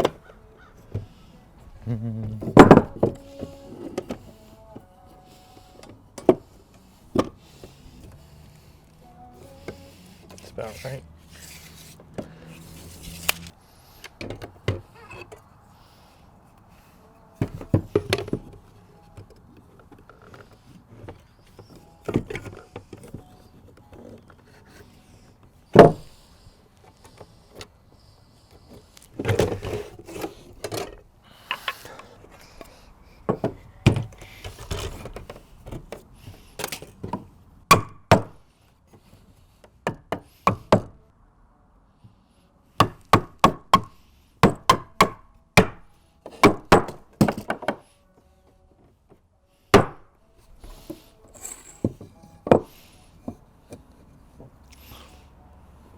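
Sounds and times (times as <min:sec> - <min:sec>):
lumber knocking and thudding: 0:02.2 - 0:03.3, 0:25.7 - 0:26.2, 0:37.0 - 0:38.4, 0:39.9 - 0:41.0, 0:42.8 - 0:47.8, 0:49.7 - 0:50.1
sharp wooden strikes: 0:42.8 - 0:47.6, 0:49.7 - 0:50.1.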